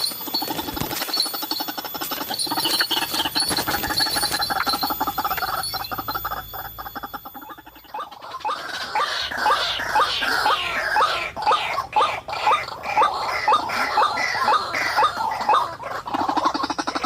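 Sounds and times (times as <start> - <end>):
bird rattling chatter: 0.0 - 9.4
bird short rising calls: 0.0 - 11.2.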